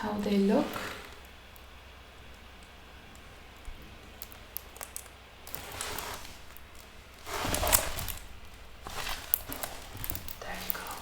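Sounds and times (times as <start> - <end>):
papers rustling: 3.4 - 11.0.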